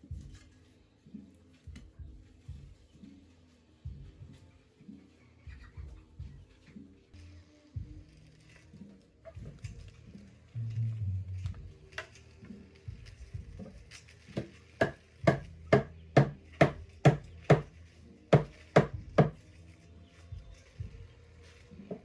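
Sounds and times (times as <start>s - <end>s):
sharp knocks: 14.4s - 17.7s.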